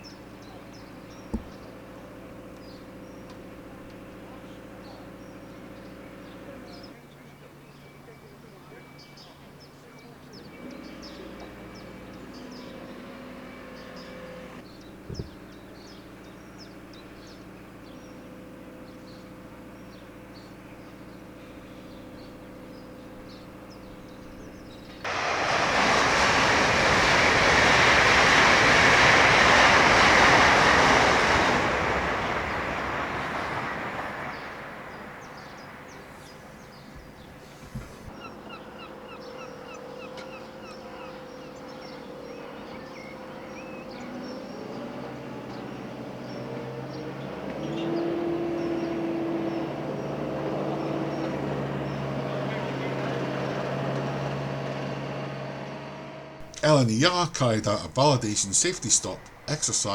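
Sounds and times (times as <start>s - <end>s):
faint bird chirps: 0.0s - 25.0s
train rushing past: 25.0s - 36.8s, 53.2s - 59.9s.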